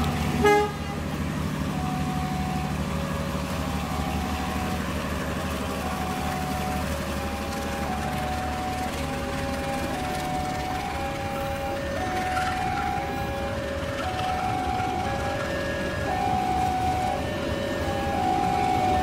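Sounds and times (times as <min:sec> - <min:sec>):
train coaches rumbling past: 0:00.0 - 0:19.0
train horn blast: 0:00.4 - 0:01.1.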